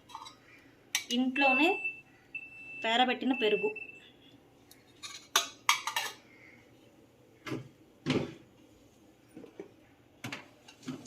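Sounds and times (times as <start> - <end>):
food containers clicking and clattering: 4.8 - 6.2.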